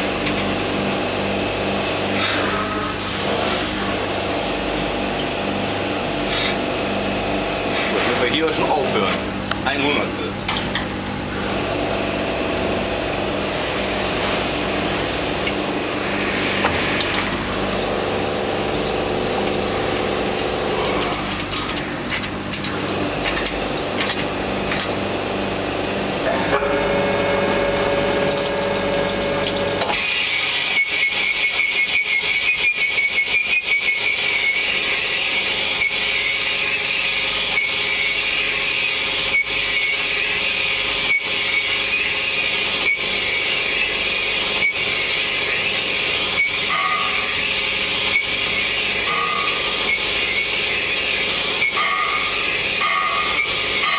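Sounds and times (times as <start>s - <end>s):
machine tool running: 25.6s - 53.9s.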